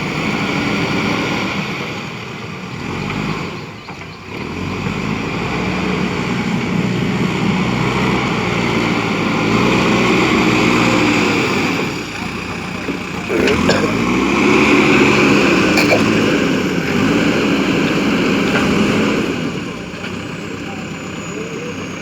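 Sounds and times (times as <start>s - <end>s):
backhoe diesel engine revving: 0.0s - 22.0s.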